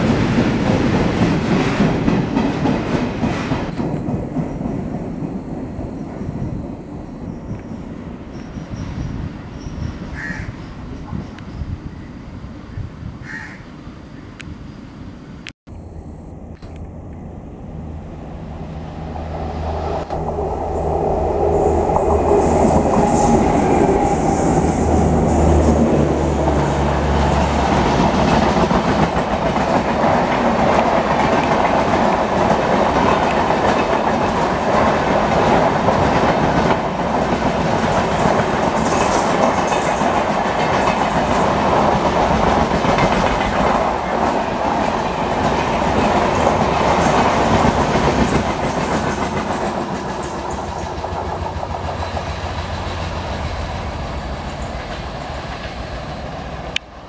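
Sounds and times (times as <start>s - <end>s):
coaches rumbling on rails: 0.0s - 12.6s, 15.8s - 57.0s
locomotive humming: 13.8s - 57.0s.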